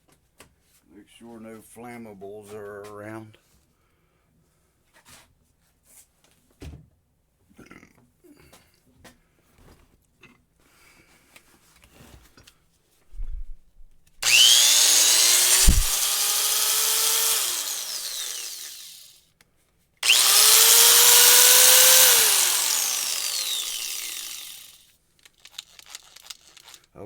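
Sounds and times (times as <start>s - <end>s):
angle grinder motor whine: 14.2s - 19.1s, 20.0s - 24.8s
handling clatter: 25.2s - 26.9s.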